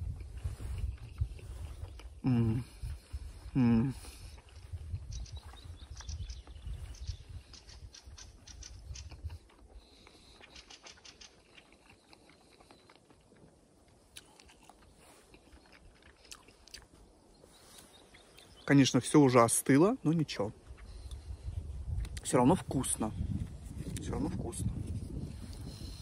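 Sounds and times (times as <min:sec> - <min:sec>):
person chewing food: 0:00.0 - 0:06.6, 0:07.9 - 0:18.6
wet mouth clicks: 0:07.6 - 0:13.4, 0:14.1 - 0:16.9.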